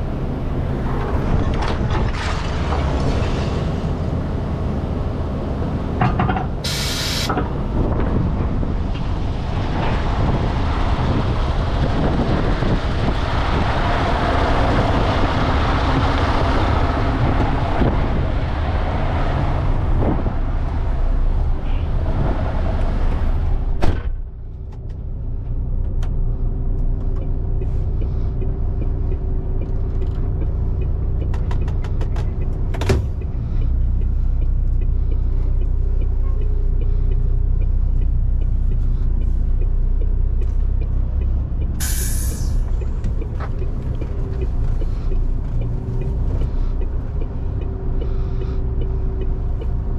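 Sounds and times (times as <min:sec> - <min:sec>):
diesel truck engine droning: 0:00.0 - 0:49.9
road noise: 0:00.0 - 0:49.9
short hiss of air: 0:06.7 - 0:07.3, 0:41.8 - 0:42.7.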